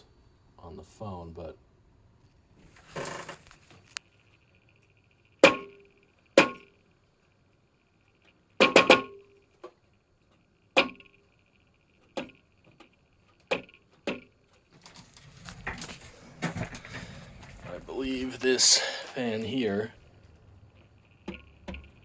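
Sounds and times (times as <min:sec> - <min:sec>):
faint high whine: 0:00.0 - 0:13.3, 0:14.8 - 0:22.0
computer fan clicking: 0:09.6 - 0:22.0.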